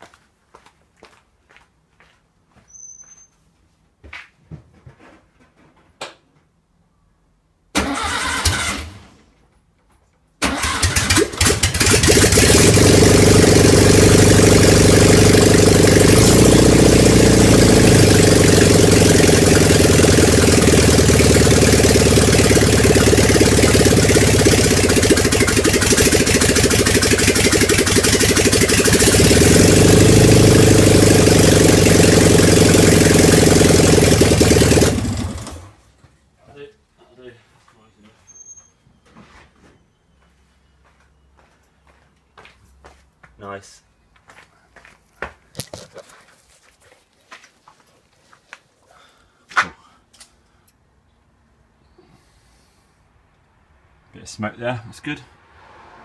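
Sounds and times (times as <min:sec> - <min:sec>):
car engine starting and revving: 0:07.8 - 0:09.2, 0:10.4 - 0:35.8, 0:55.4 - 0:56.0.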